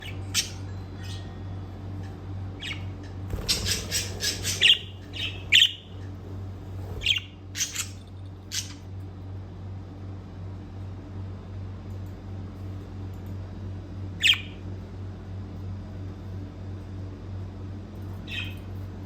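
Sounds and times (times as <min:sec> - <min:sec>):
steady low hum: 0:00.0 - 0:19.0
budgerigars squawking and chirping: 0:02.6 - 0:08.8.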